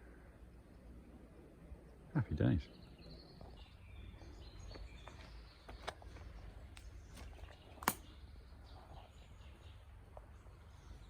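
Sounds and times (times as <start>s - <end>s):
sharp clicks: 7.8s - 8.1s.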